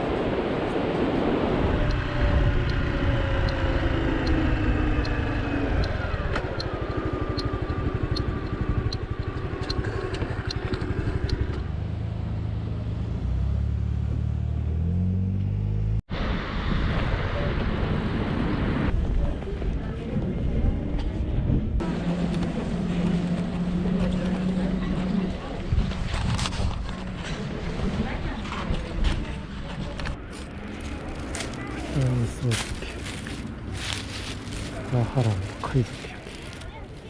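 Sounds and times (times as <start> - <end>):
road and wind noise: 0.0 - 37.0
motorcycle engine running: 1.6 - 12.4
light even ticking: 3.4 - 11.6.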